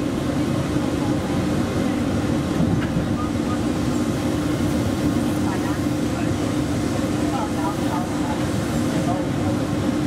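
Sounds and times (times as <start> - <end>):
train interior hum and whir: 0.0 - 10.0.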